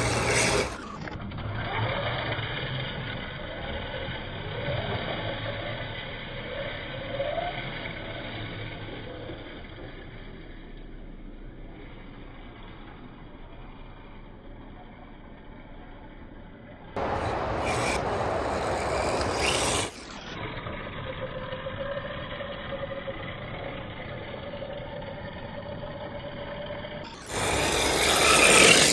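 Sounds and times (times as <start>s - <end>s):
plastic tires scraping ground: 0.0s - 0.8s, 17.0s - 20.1s, 27.2s - 28.9s
electric motor whine: 0.0s - 1.2s, 17.0s - 20.3s, 27.1s - 28.9s.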